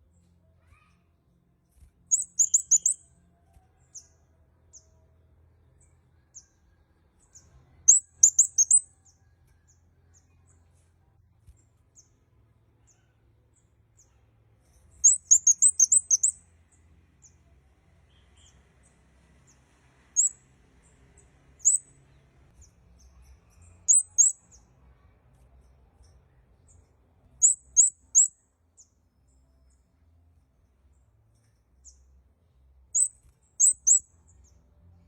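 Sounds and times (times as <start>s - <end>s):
bird calling in high thin chirps: 2.1s - 3.0s, 15.0s - 16.4s.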